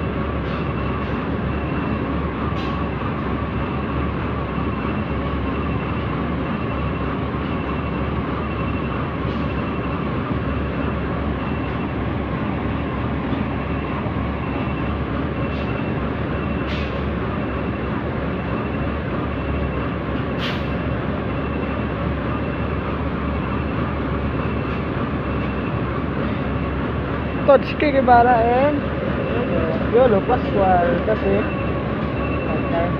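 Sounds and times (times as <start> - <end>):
heavy diesel engine running: 0.0 - 32.9
faint high beep: 31.3 - 32.9.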